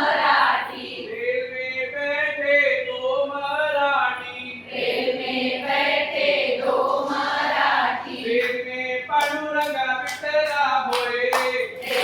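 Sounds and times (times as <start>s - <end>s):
voices singing in unison: 0.0s - 1.4s, 4.6s - 8.7s.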